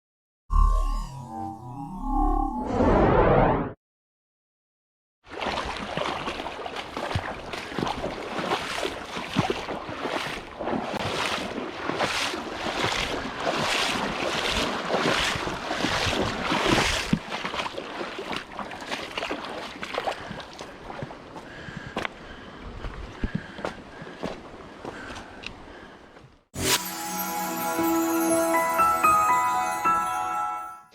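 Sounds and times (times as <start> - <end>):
legs splashing through water: 5.2 - 21.8.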